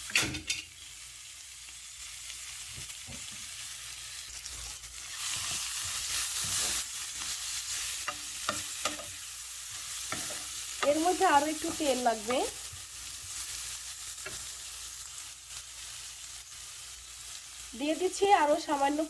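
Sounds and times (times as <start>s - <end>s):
onions sizzling in oil: 0.0s - 19.0s.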